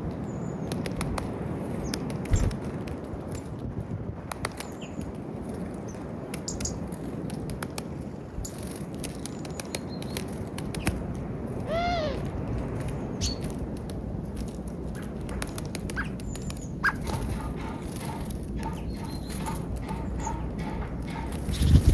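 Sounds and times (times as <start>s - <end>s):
harsh bird call: 11.7s - 12.3s
birds tapping at feeder: 14.8s - 21.9s.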